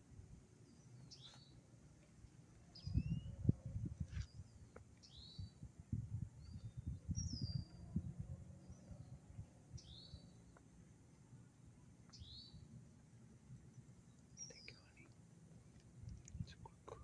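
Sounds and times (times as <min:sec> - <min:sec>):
bird chirping: 0:00.6 - 0:01.6, 0:02.7 - 0:03.4, 0:04.2 - 0:05.6, 0:06.4 - 0:08.0, 0:08.6 - 0:10.6, 0:12.1 - 0:12.7, 0:14.0 - 0:15.2.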